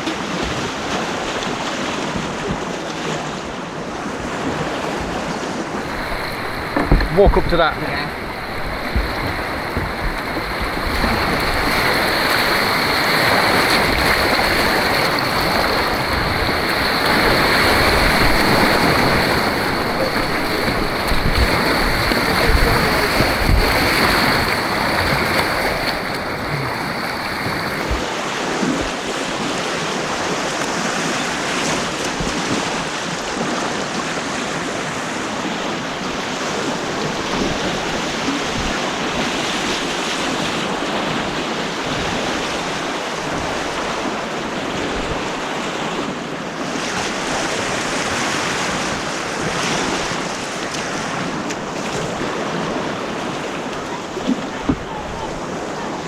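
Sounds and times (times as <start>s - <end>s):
white water rushing: 0.0s - 56.0s.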